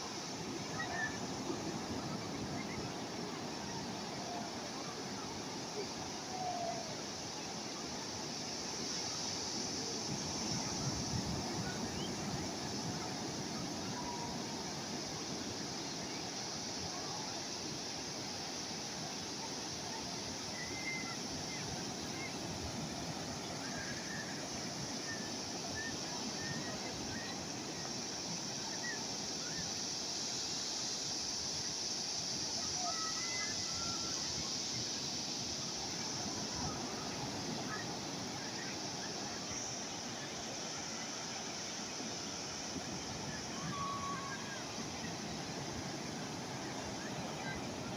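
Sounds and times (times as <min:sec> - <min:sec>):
calm sea waves washing: 0:00.0 - 0:47.9
faint high chirps: 0:20.0 - 0:22.5.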